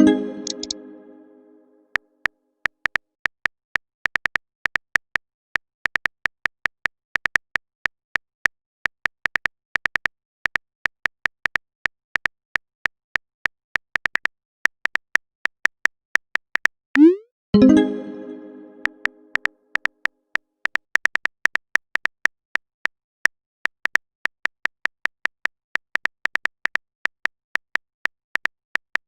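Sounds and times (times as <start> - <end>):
message chime: 0.0 - 1.6, 17.0 - 19.3
phone keyboard typing clicks: 0.2 - 0.8.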